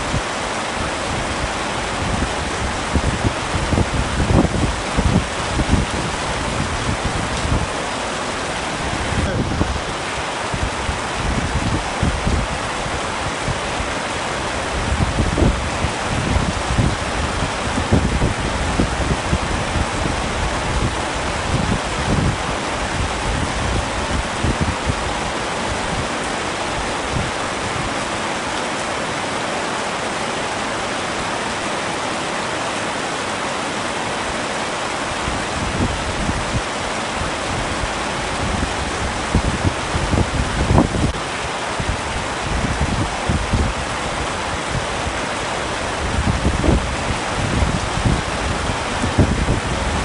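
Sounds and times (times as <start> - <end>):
heavy rain falling: 0.0 - 50.0
low rumbling gusts: 0.0 - 50.0.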